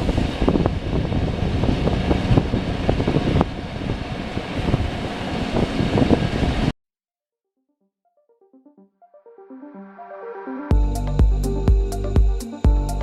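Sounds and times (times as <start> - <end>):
train rumbling: 0.0 - 6.7.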